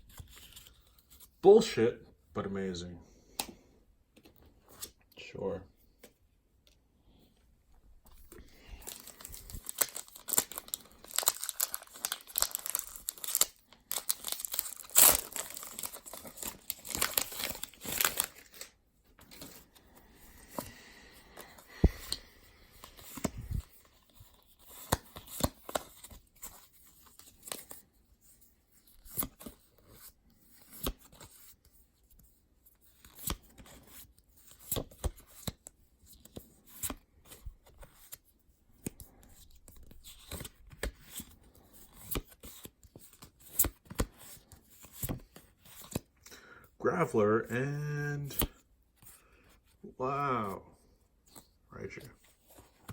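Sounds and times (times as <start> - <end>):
cards rustling and clicking: 0.0 - 1.4, 3.3 - 5.1, 8.0 - 46.3, 47.7 - 49.8, 51.2 - 52.9
foil wrapper tearing and crinkling: 8.8 - 18.8.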